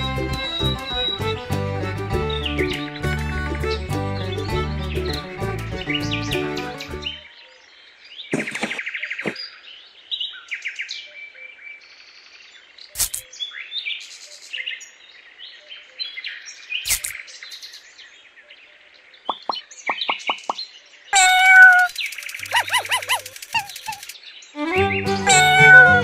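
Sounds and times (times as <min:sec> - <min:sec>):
birds chirping and singing: 0:00.0 - 0:07.3, 0:08.1 - 0:11.4, 0:19.3 - 0:26.0
sharp clicks: 0:13.0 - 0:13.2, 0:16.9 - 0:17.2, 0:21.7 - 0:24.2.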